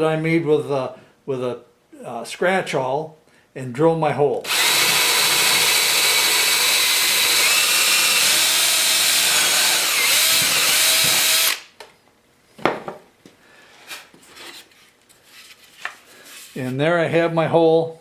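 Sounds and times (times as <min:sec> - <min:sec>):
power drill boring into wood: 0:04.4 - 0:11.7.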